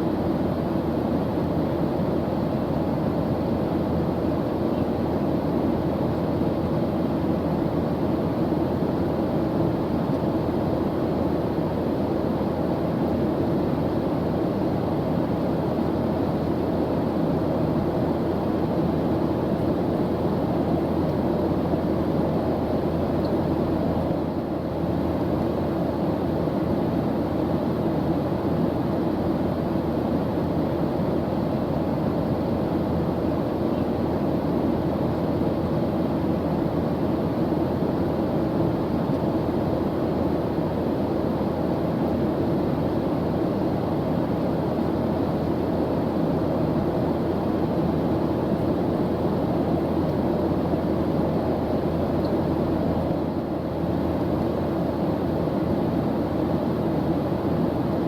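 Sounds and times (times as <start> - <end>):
airplane engine drone: 0.0 - 58.0.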